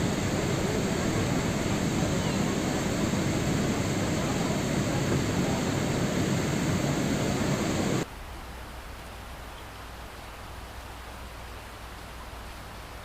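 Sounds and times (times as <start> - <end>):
heavy rain: 0.0 - 8.8.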